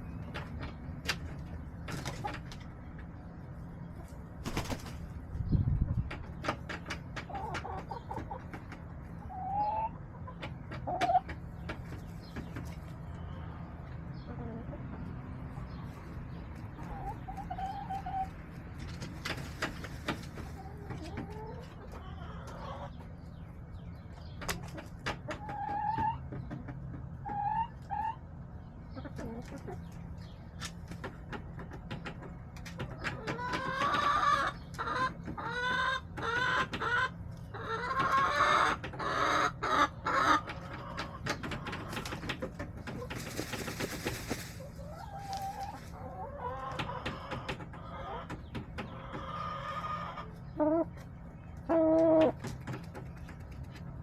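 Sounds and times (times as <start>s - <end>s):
hens clucking: 0.0s - 54.0s.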